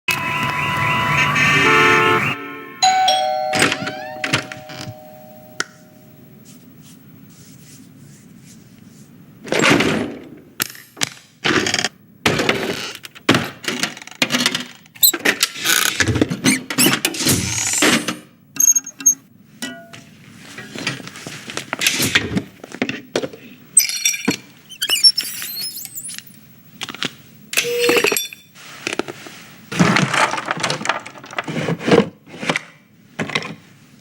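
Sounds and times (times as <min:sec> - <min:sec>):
doorbell chime ringing: 0:02.0 - 0:06.2.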